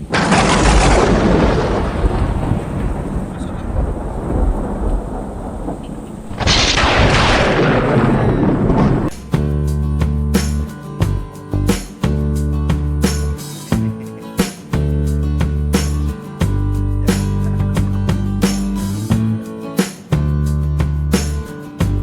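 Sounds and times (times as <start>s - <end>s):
thunder claps rumbling: 0.0s - 9.2s
rain: 0.0s - 9.3s
music with a beat: 9.1s - 22.0s.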